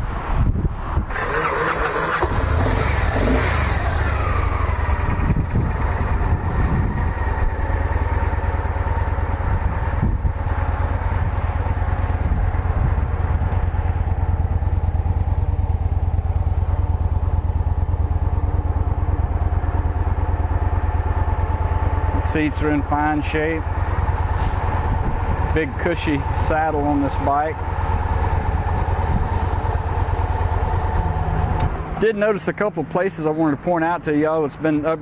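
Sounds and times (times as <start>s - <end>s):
motorcycle starter cranking: 1.1s - 7.2s
motorcycle engine idling: 1.1s - 32.9s.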